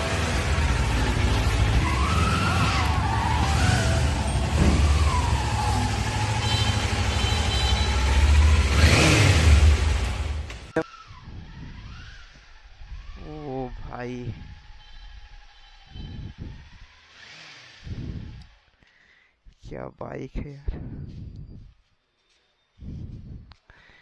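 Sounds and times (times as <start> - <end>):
motorcycle engine revving: 0.0 - 18.8.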